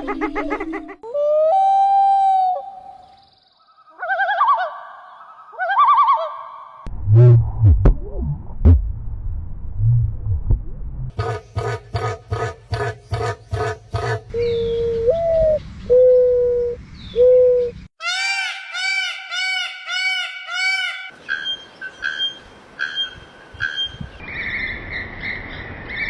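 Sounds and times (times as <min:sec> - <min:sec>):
arching bird notes: 0:11.2 - 0:24.7.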